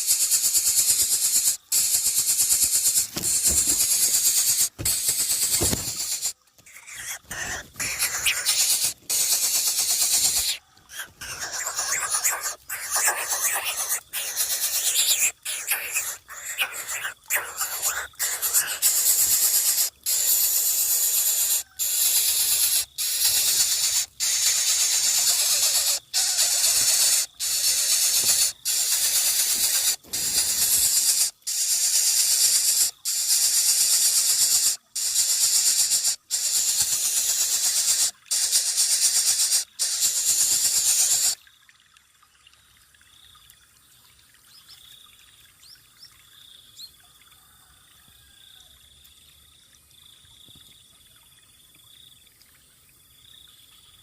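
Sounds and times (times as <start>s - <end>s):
bird hissing begging calls: 0.0s - 41.4s
faint bird chirps: 0.0s - 41.4s.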